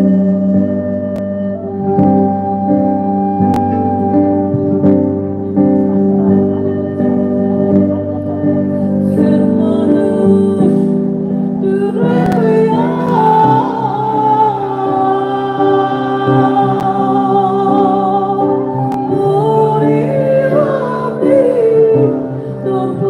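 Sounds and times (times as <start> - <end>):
person singing: 7.6 - 23.0.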